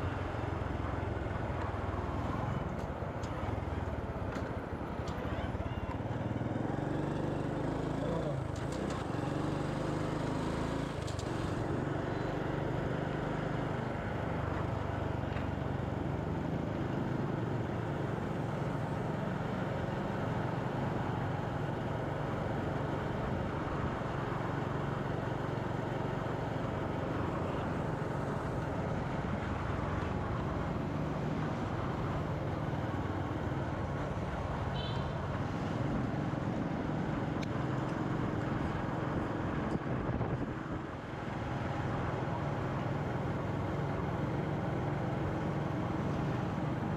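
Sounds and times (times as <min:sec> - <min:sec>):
road and wind noise: 0:00.0 - 0:46.9
motorcycle engine running: 0:01.9 - 0:19.1.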